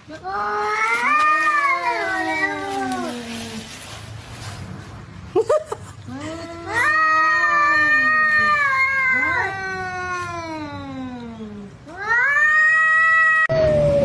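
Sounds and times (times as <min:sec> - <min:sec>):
cats yowling: 0:00.3 - 0:03.7, 0:06.6 - 0:14.0.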